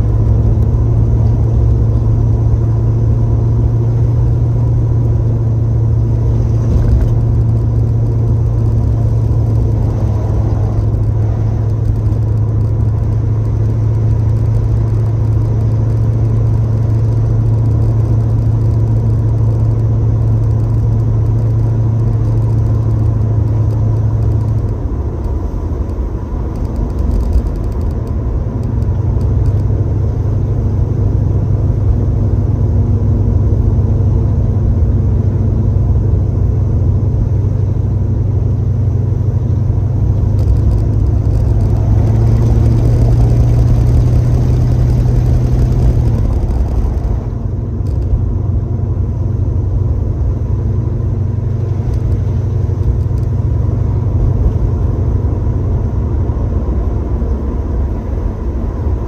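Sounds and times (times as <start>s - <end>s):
car engine and exhaust drone: 0.0s - 59.0s
road noise: 0.0s - 59.0s.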